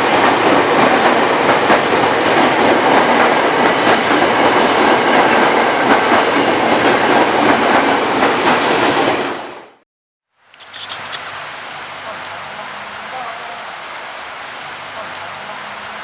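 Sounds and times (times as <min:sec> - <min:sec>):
heavy rain hiss: 0:10.4 - 0:16.0.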